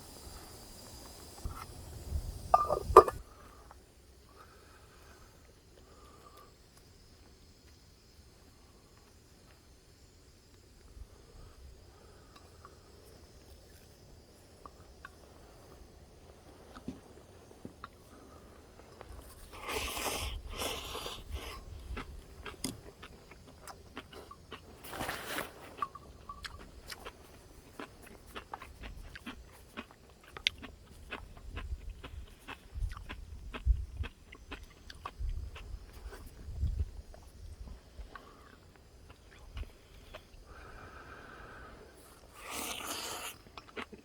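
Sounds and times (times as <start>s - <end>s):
noisy eating bursts: 11.1s - 44.0s
person biting and chewing: 19.2s - 24.6s, 27.8s - 35.2s, 42.2s - 44.0s.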